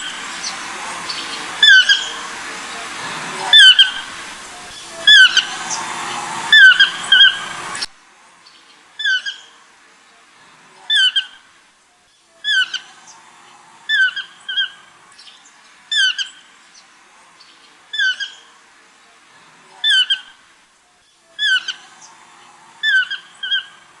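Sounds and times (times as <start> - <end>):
rushing background noise: 0.0 - 9.0
bird squawking harshly: 1.6 - 2.2, 3.5 - 4.1, 4.7 - 5.8, 6.5 - 7.5.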